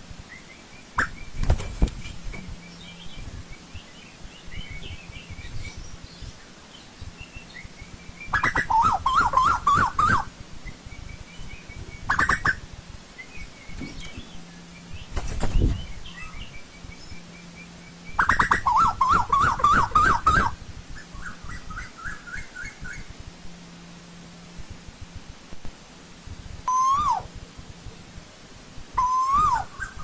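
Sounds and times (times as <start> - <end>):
faint bird chirps: 0.3 - 23.2, 26.7 - 28.2, 29.0 - 30.0
koel calling: 8.3 - 10.3, 18.1 - 20.6, 26.7 - 27.3, 29.0 - 30.0.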